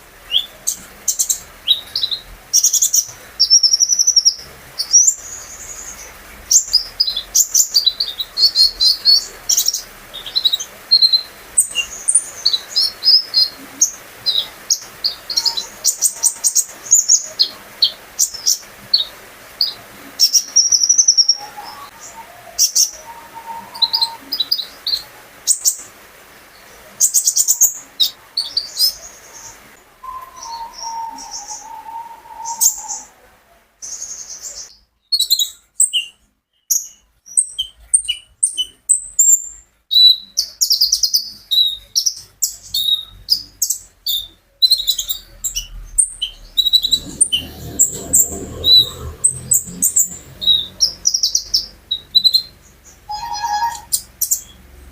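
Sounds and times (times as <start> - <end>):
songbird chirping and trilling: 0.0 - 54.9
whistled bird notes: 0.3 - 25.8, 28.0 - 33.3, 42.7 - 54.6.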